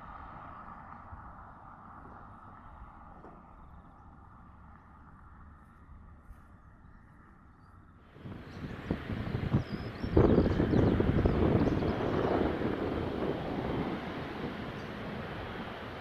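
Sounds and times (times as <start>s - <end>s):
wind: 0.0s - 16.0s
jet engines roaring: 8.1s - 16.0s
low rumble: 8.2s - 16.0s.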